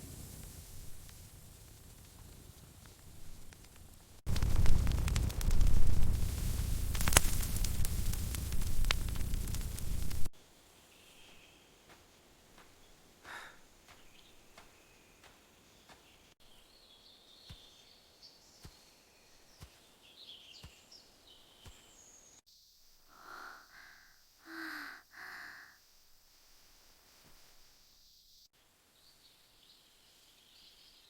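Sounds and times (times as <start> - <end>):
birds chirping: 12.6 - 22.4.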